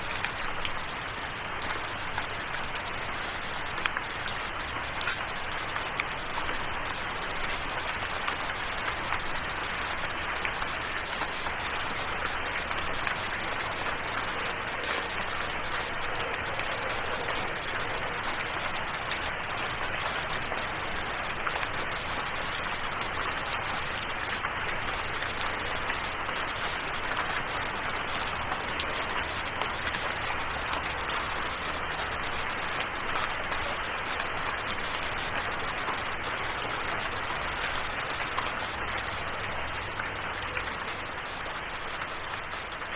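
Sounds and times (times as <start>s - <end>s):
raindrop ticks: 3.6s - 42.9s
rain hissing: 8.6s - 24.0s.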